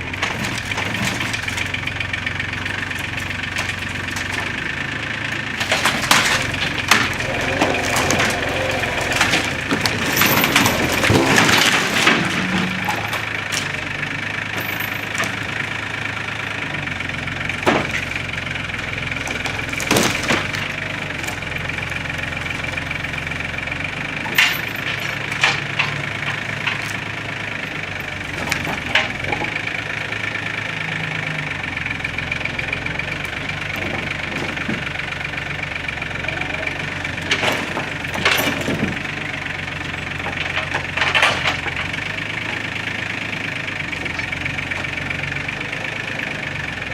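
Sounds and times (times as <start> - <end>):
tractor diesel engine running: 0.0 - 46.9
high whine: 6.9 - 11.8
sharp knocks and cracks: 24.4 - 27.1.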